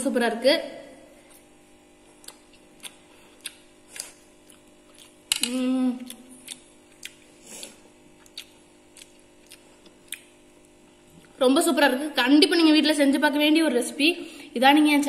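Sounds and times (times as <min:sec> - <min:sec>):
person chewing with lip smacks: 0:01.2 - 0:05.3, 0:06.0 - 0:11.4.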